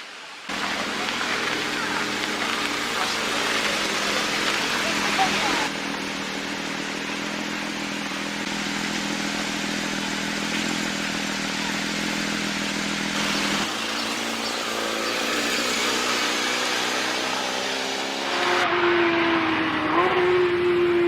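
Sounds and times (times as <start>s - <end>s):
road and wind noise: 0.0s - 21.0s
car engine revving: 0.5s - 21.0s.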